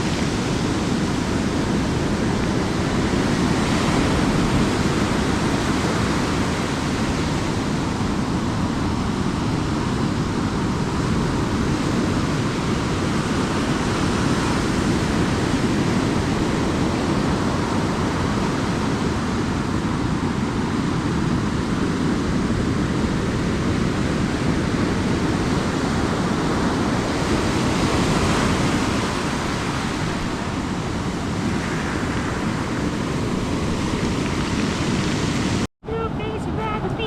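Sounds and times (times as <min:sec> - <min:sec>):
ocean surf breaking on beach: 0:00.0 - 0:37.0.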